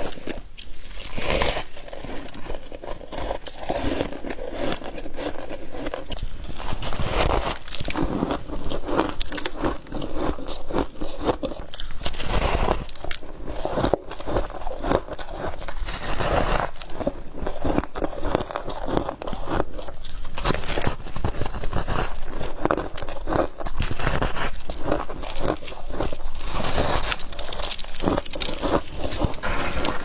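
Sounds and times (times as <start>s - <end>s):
crunching frost while chewing: 0.0s - 30.0s.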